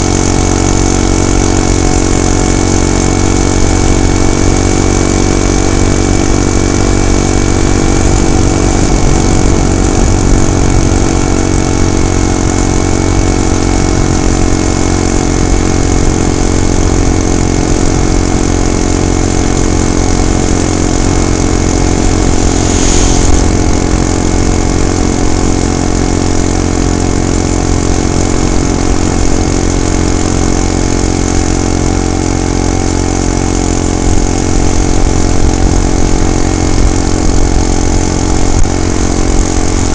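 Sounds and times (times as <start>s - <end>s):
small gasoline engine running: 0.0s - 39.9s
short rush of noise: 21.0s - 25.4s.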